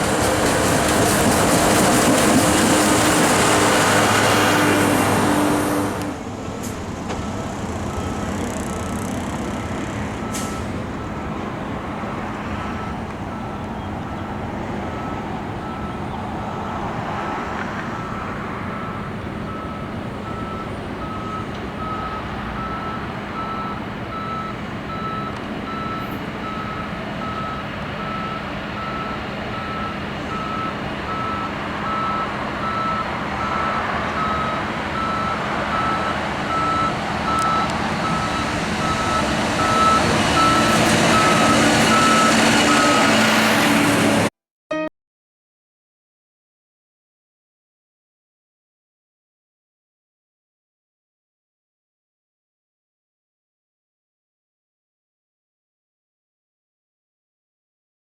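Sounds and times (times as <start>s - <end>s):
passing train rumble: 0.0s - 44.3s
electronic beep: 44.7s - 44.9s.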